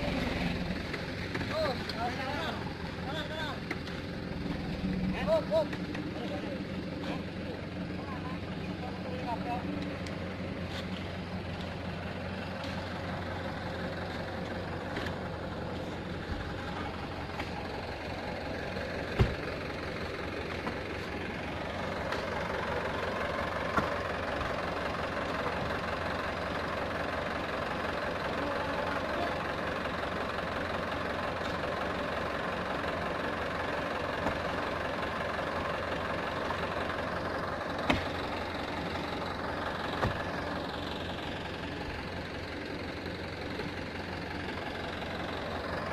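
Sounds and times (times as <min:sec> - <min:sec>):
diesel truck engine running: 0:00.0 - 0:45.9.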